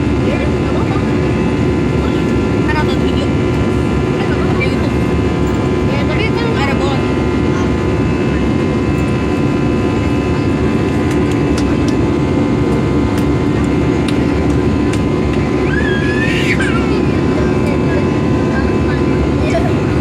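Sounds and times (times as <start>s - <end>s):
aircraft cabin engine roar: 0.0s - 20.0s
steady whining tones: 0.0s - 20.0s.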